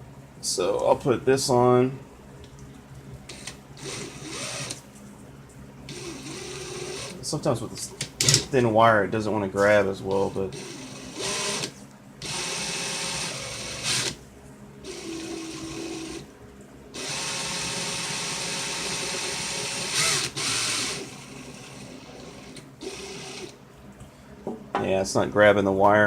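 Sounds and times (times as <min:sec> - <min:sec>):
power drill running: 0:03.3 - 0:04.8, 0:05.9 - 0:07.2, 0:10.2 - 0:14.2, 0:14.8 - 0:16.3, 0:17.0 - 0:23.6.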